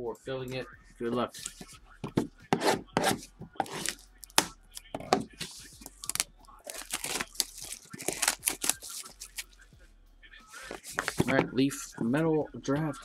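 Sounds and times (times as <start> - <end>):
crinkling and rustling: 5.1 - 9.5, 10.6 - 11.5
packaging ripping: 6.0 - 9.5.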